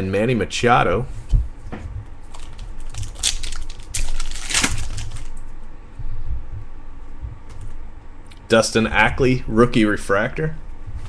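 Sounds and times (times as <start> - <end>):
card packs crinkling: 2.3 - 5.4.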